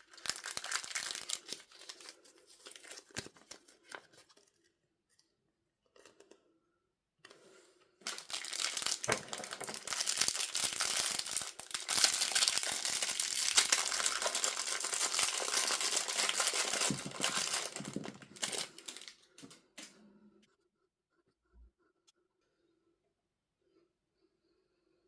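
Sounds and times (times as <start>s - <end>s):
packaging crinkling: 0.0s - 4.4s, 8.0s - 19.6s.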